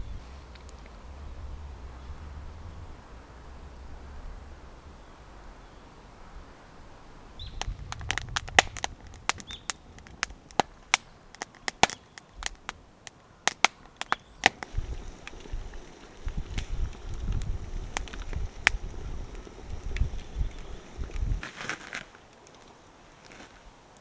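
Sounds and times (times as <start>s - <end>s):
wood fire crackling and popping: 7.4s - 24.0s.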